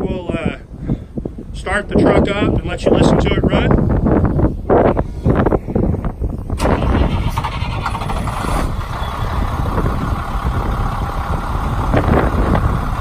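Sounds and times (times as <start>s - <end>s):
diesel engine starting and idling: 6.4s - 13.0s.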